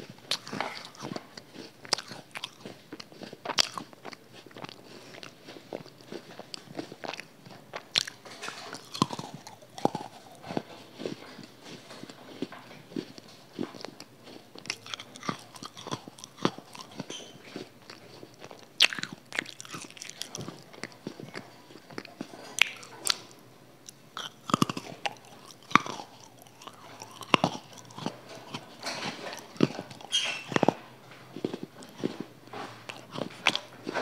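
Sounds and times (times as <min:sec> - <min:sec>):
crunchy chewing of snack: 0:00.0 - 0:34.0.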